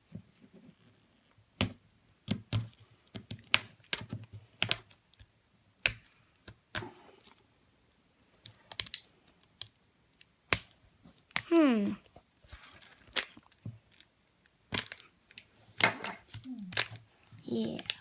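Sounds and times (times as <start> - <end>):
plastic package clicking and tapping: 14.7 - 17.0.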